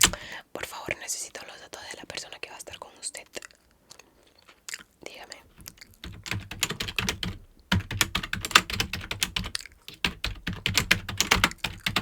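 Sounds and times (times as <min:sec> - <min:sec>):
fast typing on keyboard: 0:00.0 - 0:00.3, 0:06.0 - 0:12.0.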